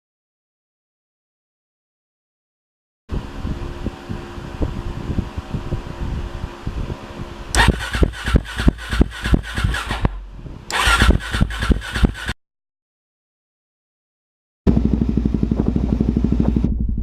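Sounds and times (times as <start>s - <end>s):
motorcycle engine idling and revving: 7.3s - 12.4s, 14.7s - 17.0s.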